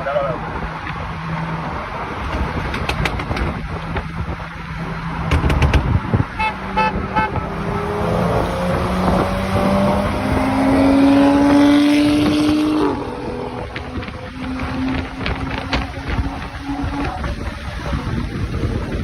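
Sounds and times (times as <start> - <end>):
car engine accelerating: 7.3 - 19.0.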